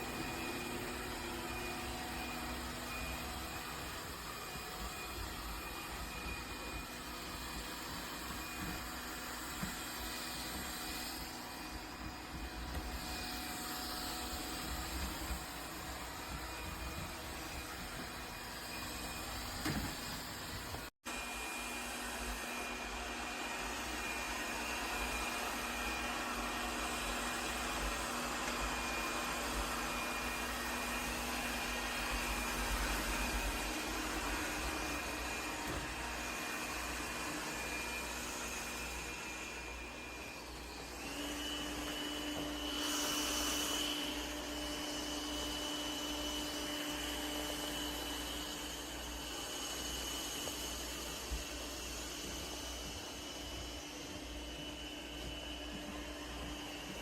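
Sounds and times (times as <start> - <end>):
robot vacuum suction hiss: 42.6 - 46.5.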